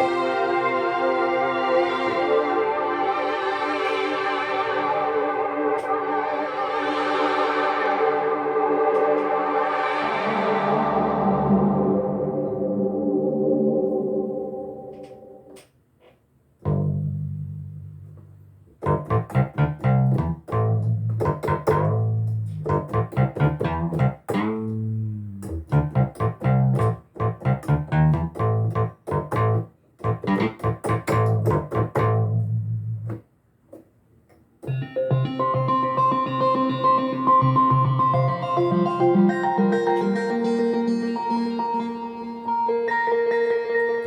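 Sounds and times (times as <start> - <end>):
synthesizer chords and notes: 0.0 - 15.7, 16.6 - 33.2, 34.6 - 44.0
synth bass line: 16.7 - 33.2.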